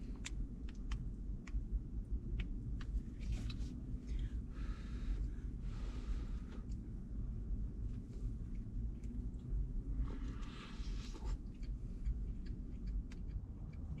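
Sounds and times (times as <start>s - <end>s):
steady low rumble: 0.0s - 14.0s
mouth clicks chewing bread: 0.1s - 3.6s, 11.1s - 14.0s
breath: 4.1s - 6.6s, 10.0s - 11.4s.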